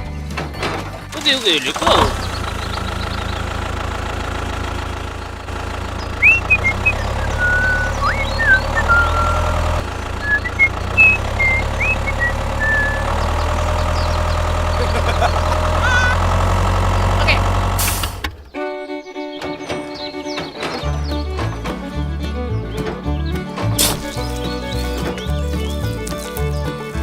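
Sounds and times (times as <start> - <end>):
small tractor motor humming: 0.0 - 27.0
short high chirps: 6.2 - 9.6, 10.2 - 13.3.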